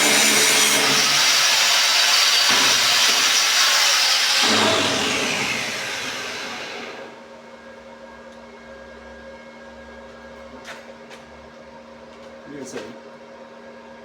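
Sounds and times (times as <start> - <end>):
electric grinder spinning down: 0.0 - 7.2.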